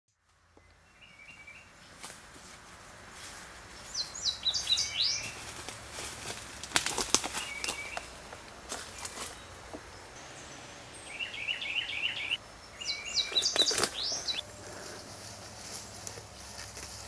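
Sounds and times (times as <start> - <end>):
songbird chirping: 0.2 - 2.2, 3.3 - 5.9, 7.0 - 17.0.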